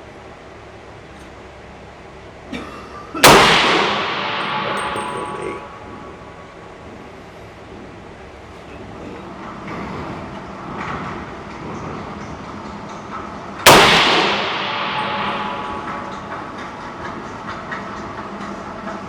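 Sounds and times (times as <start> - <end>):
rifle shot: 3.2 - 6.1, 13.6 - 16.6.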